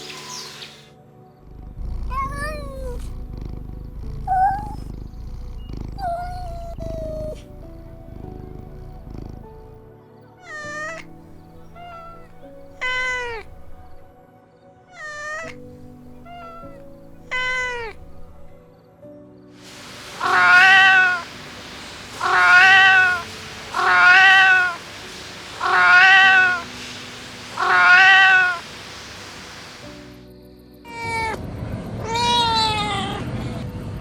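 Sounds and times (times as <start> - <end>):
steady hiss: 0.0 - 1.0, 10.5 - 14.1, 15.1 - 18.6, 19.6 - 30.3
soft background music: 0.0 - 34.0
kitten meowing: 2.1 - 3.1, 4.3 - 4.9, 10.4 - 14.0, 15.0 - 18.5, 20.1 - 30.0.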